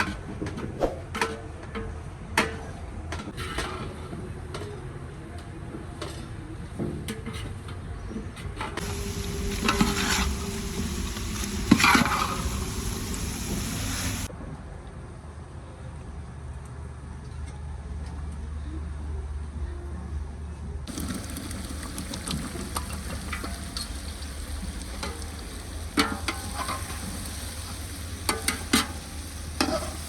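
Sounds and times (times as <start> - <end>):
food sizzling in hot oil: 8.8 - 14.3, 20.9 - 30.0
utensil clinking in a pot: 20.9 - 30.0.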